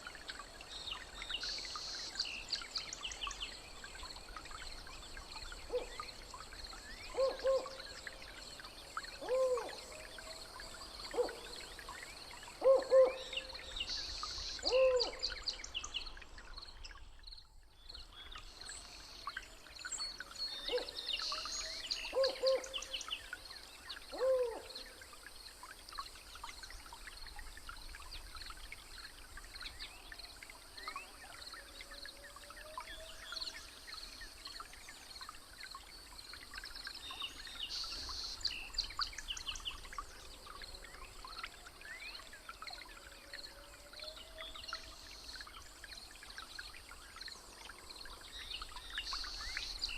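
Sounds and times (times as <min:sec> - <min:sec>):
low hooting bird calls: 0:07.1 - 0:07.9, 0:09.2 - 0:10.3, 0:11.1 - 0:11.6, 0:12.6 - 0:13.6, 0:14.6 - 0:15.3, 0:22.1 - 0:22.9, 0:24.1 - 0:24.9.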